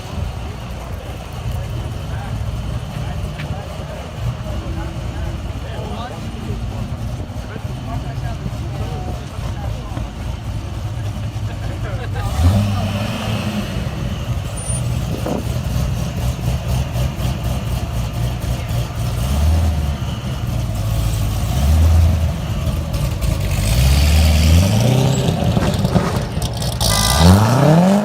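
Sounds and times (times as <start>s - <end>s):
supercar engines running: 0.0s - 28.0s
engine revving sharply: 12.1s - 28.0s.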